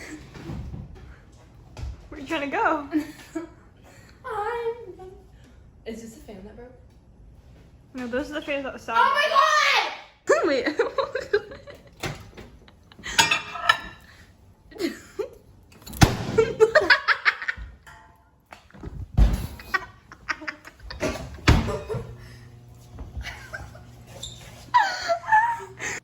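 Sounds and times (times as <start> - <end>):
person laughing: 19.6 - 22.1, 23.2 - 24.0, 24.7 - 26.0.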